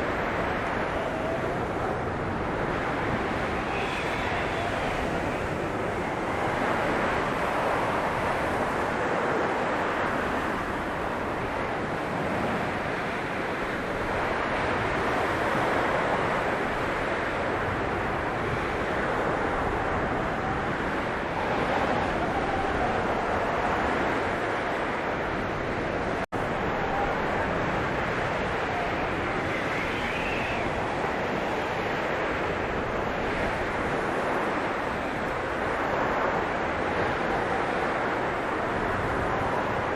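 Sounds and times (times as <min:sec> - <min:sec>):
blizzard wind blowing: 0:00.0 - 0:39.9
faint wavering whistle: 0:29.4 - 0:30.8.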